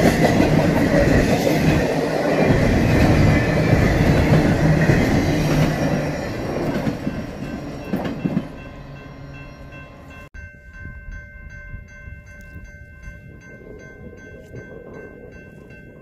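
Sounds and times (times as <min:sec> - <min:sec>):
train cars rumbling and clattering: 0:00.0 - 0:10.3
train clank: 0:00.0 - 0:11.6.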